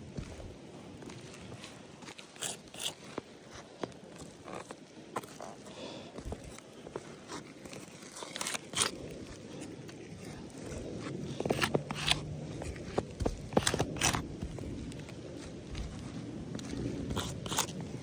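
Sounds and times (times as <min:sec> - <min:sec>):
footsteps on roof: 0:00.0 - 0:01.6, 0:10.6 - 0:18.0
crunching steps: 0:00.1 - 0:18.0.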